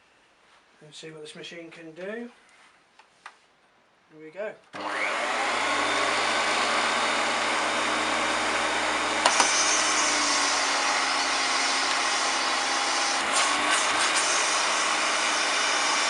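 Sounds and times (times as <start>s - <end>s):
vacuum cleaner running: 4.8s - 16.0s.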